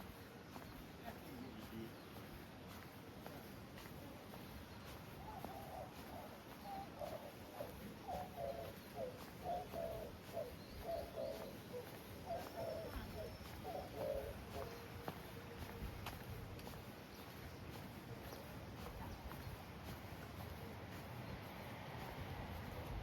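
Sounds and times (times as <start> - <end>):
low background noise: 0.0 - 23.0
dove cooing: 5.2 - 15.2.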